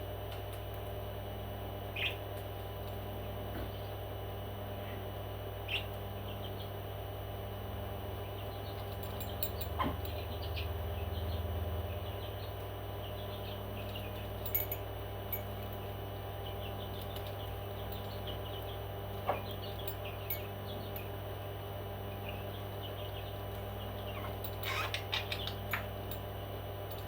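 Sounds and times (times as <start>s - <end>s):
steady hum: 0.0s - 27.0s
parrots chirping: 1.9s - 2.2s, 5.7s - 6.7s, 22.1s - 25.9s.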